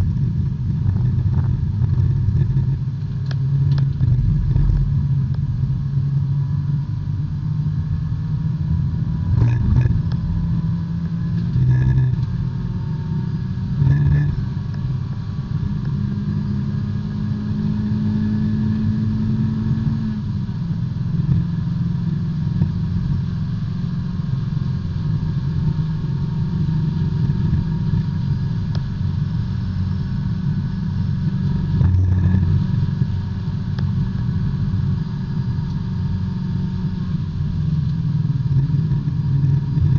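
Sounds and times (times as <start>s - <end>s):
car engine running hard: 0.0s - 39.9s.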